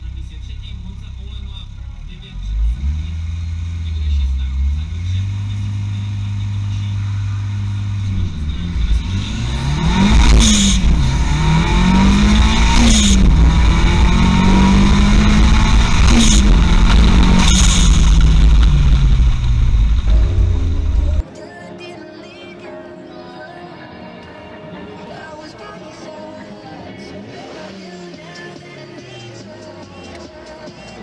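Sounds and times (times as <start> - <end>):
car engine accelerating hard: 0.0 - 21.2.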